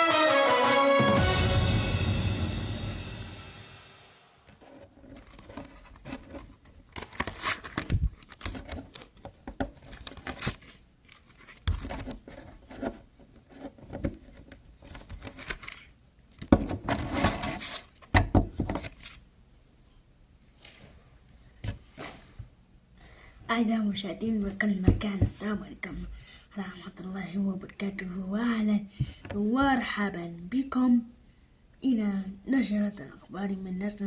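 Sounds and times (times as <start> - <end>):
rustling and scraping handling: 4.5 - 19.2, 20.4 - 22.6.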